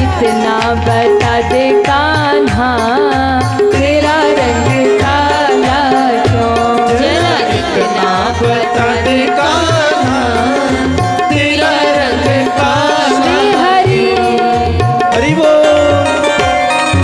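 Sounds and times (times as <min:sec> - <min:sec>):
tabla beat: 0:00.0 - 0:17.0.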